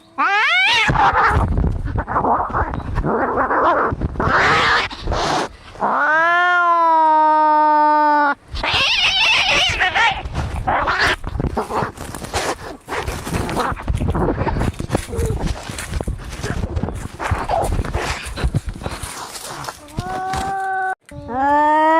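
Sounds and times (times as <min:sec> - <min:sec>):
cat yowling: 0:00.2 - 0:01.4
cats hissing and spitting: 0:04.2 - 0:05.5.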